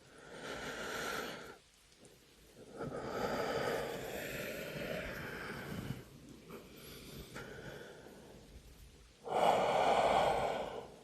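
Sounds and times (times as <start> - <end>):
man breathing: 2.6 - 8.6, 9.2 - 11.0.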